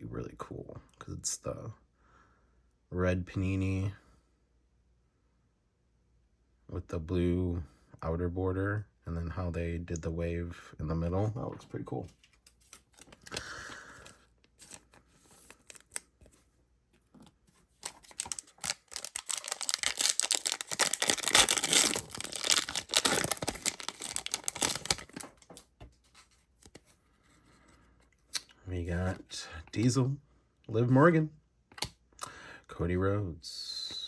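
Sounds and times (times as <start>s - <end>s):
wrapper tearing and crinkling: 14.6s - 16.1s, 17.8s - 25.6s.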